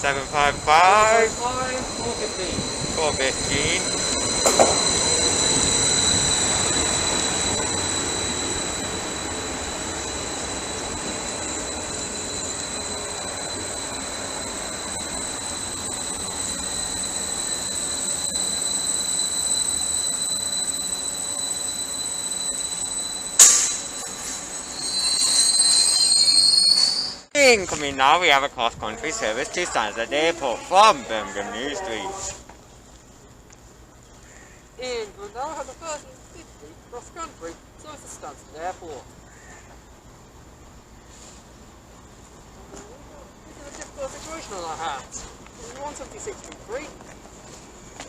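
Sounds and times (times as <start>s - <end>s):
rising whine: 0.0s - 27.3s
train wheels squealing: 0.0s - 27.3s
train rumble: 0.0s - 34.0s
sharp bang: 23.4s - 23.9s.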